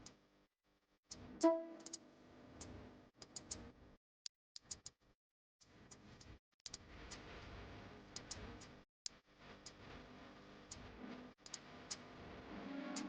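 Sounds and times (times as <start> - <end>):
scattered sharp clicks: 6.6 - 7.2, 11.4 - 12.0.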